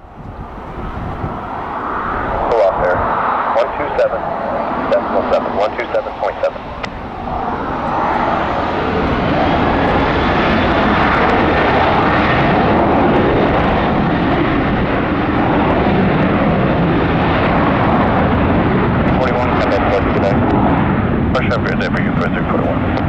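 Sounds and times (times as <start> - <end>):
jet engine roar: 0.0 - 23.0.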